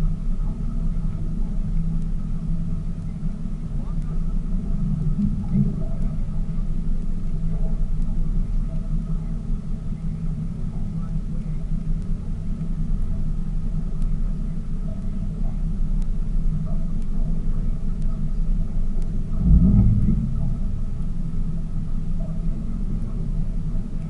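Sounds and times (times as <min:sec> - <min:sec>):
boat engine droning: 0:00.0 - 0:24.0.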